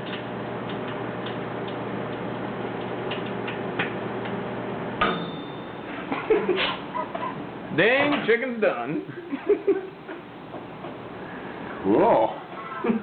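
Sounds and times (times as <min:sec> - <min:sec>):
crackling clicks of sparking disc: 0:00.0 - 0:04.4
microwave click: 0:00.0 - 0:04.4
microwave oven humming: 0:00.0 - 0:13.0.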